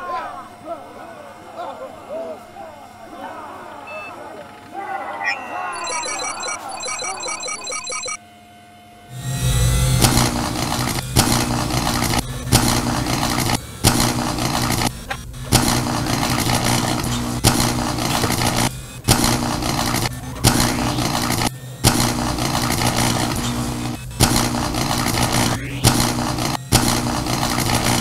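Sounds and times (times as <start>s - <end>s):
steady low drone: 8.8s - 28.0s
laser blasts: 9.6s - 28.0s.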